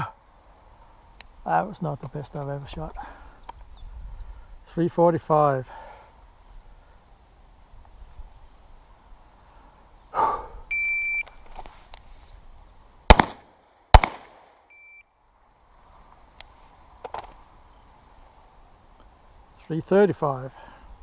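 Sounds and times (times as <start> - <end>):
shot timer beep: 10.7 - 11.3
pistol shots: 13.1 - 14.6.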